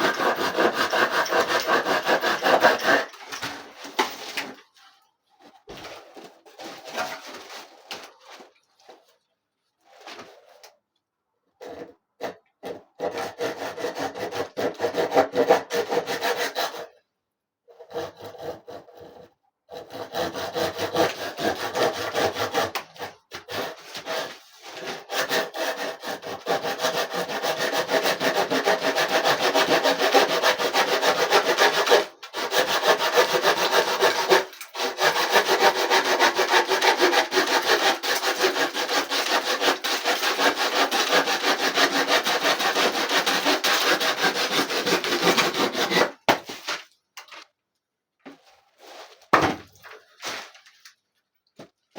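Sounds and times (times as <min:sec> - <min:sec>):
saw cutting wood: 0:00.0 - 0:04.0, 0:12.6 - 0:16.9, 0:17.8 - 0:46.8.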